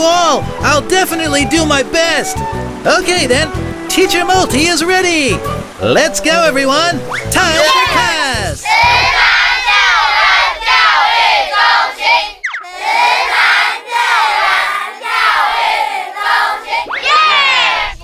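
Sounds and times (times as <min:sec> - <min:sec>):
children shouting and cheering: 0:07.4 - 0:18.0
rising whistle-like swoop: 0:12.4 - 0:12.8, 0:16.9 - 0:18.0.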